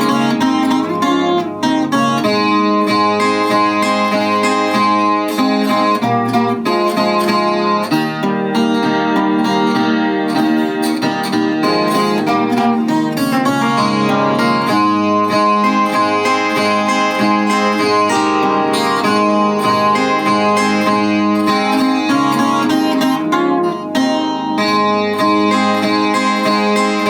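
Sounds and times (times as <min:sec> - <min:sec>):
plucked string instrument: 0:00.0 - 0:27.0.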